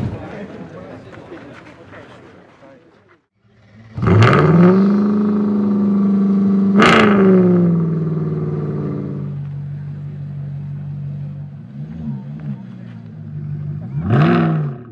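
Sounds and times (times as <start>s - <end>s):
car engine idling: 3.4s - 14.9s
engine revving blip: 3.8s - 9.4s.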